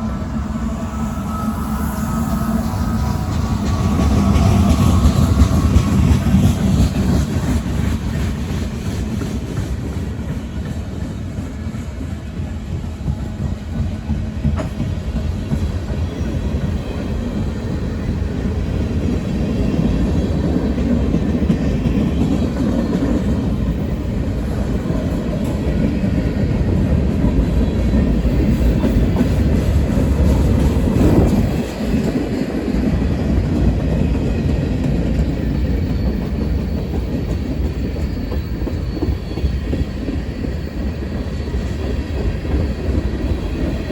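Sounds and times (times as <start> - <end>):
freight train rumbling past: 0.0 - 43.9.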